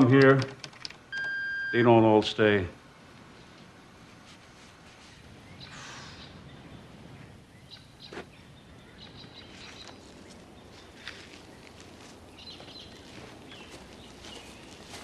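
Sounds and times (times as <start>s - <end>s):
low steady hiss: 0.0s - 15.0s
faint bird chirps: 4.6s - 15.0s.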